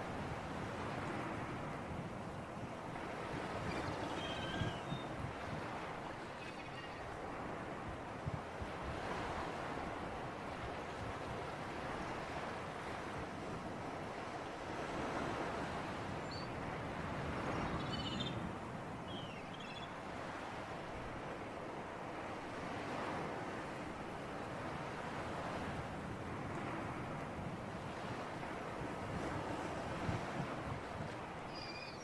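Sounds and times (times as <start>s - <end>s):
wind: 0.0s - 32.0s
bird chirps: 3.7s - 5.1s, 17.6s - 18.4s, 19.1s - 19.9s, 31.5s - 32.0s
sea waves washing: 20.1s - 32.0s.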